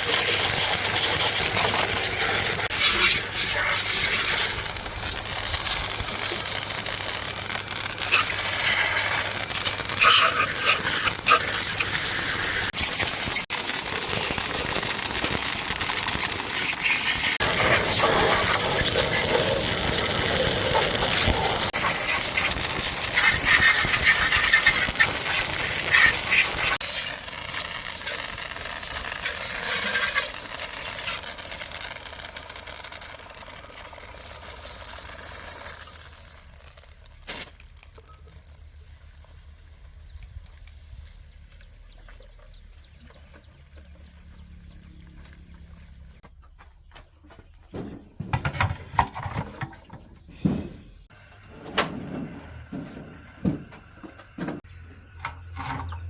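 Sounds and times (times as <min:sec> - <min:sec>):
broad hissing rush: 0:00.0 - 0:37.6, 0:49.3 - 0:54.6
insects chirping: 0:00.1 - 0:56.0
knocks and clatters: 0:46.5 - 0:56.0.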